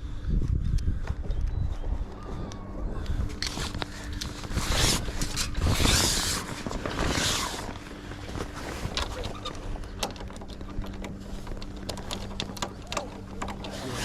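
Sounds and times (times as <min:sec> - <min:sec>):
faint low hum: 0:00.0 - 0:14.0
loud rustling swishes: 0:03.2 - 0:09.9
small clicks and knocks of fittings: 0:09.8 - 0:13.9.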